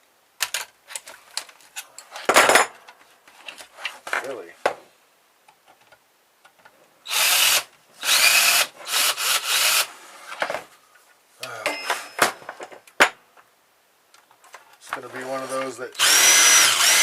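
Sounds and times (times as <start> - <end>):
power drill running: 7.1 - 9.9, 16.0 - 17.0.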